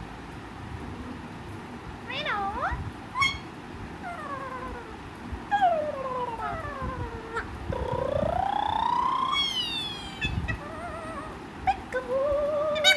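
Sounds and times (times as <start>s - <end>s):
parakeet gliding calls: 3.2s - 3.5s, 7.3s - 12.9s.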